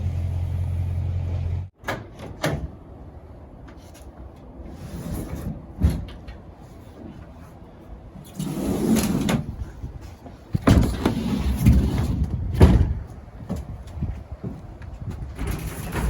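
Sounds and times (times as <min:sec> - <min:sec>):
heavy thumps of tires: 0:10.5 - 0:15.5
tires scraping while sliding: 0:10.9 - 0:12.4.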